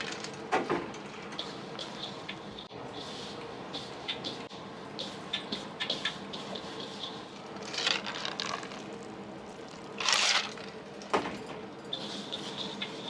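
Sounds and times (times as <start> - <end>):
faint kitchen hum: 0.0 - 13.0
dough rubbing and squishing: 1.8 - 10.8.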